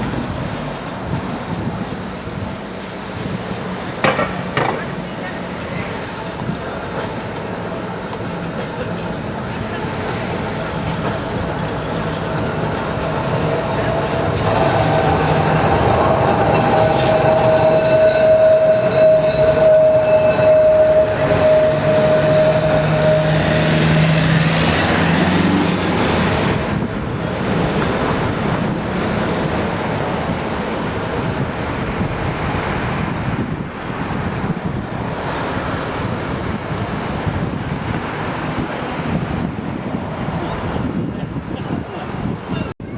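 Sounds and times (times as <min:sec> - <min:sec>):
tram wheels running on rails: 0:00.0 - 0:42.9
tram motor whine: 0:06.1 - 0:36.6.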